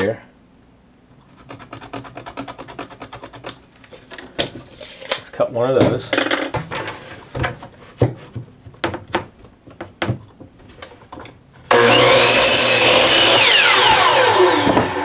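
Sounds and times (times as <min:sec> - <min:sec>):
power saw cutting: 0:11.7 - 0:15.0.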